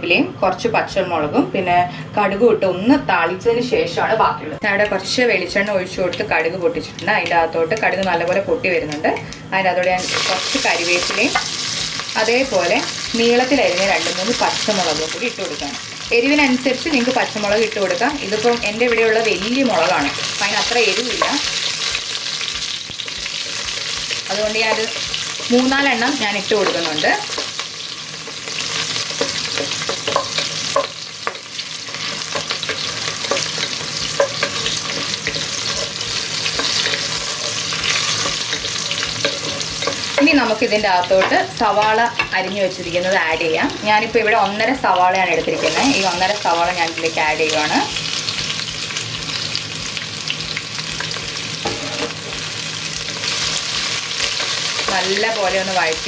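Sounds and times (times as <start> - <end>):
leaves and chillies sizzling in oil: 4.6 - 56.0
stirring in a pan: 19.8 - 42.3.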